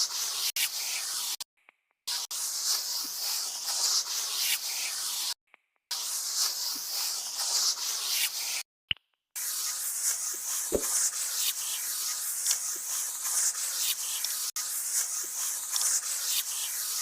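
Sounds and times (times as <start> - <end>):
pencil scratching on paper: 0.0 - 1.4, 2.1 - 8.6, 9.4 - 17.0
light pencil tap: 10.7 - 11.0.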